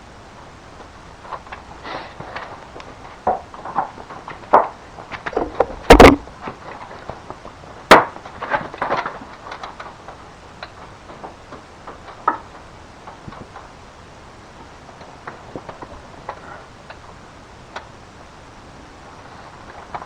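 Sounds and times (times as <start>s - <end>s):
sharp crack: 0.8s - 13.8s
hard objects knocking: 3.2s - 6.3s.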